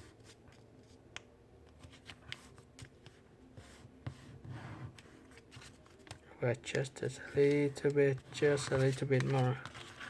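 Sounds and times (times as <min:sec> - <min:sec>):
paper being folded and creased: 0:05.1 - 0:10.0
paper rustle: 0:05.2 - 0:10.0.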